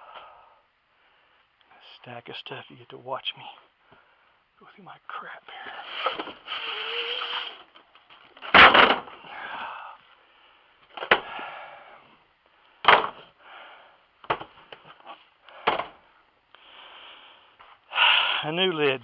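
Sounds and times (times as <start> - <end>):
wood scraping and sliding: 5.8 - 7.8
wooden knocks: 14.3 - 14.5.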